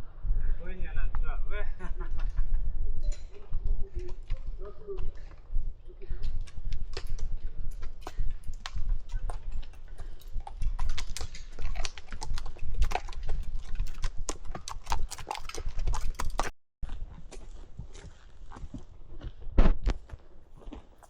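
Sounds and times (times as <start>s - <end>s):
low rumble on microphone: 0.0s - 13.8s
horse hooves clip-clopping: 1.9s - 21.0s.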